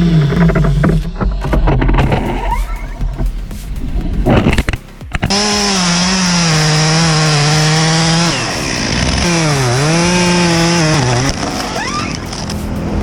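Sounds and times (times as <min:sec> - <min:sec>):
chainsaw revving: 0:00.0 - 0:02.9, 0:04.3 - 0:13.0.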